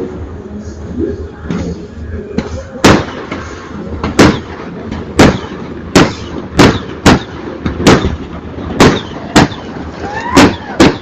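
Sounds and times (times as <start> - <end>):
steady background noise: 0.0 - 11.0
loud sharp bangs: 2.4 - 11.0.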